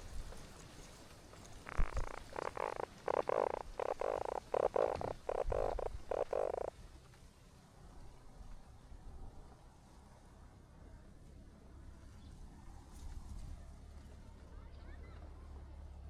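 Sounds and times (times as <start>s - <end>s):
short pulsed animal calls: 1.7s - 6.7s.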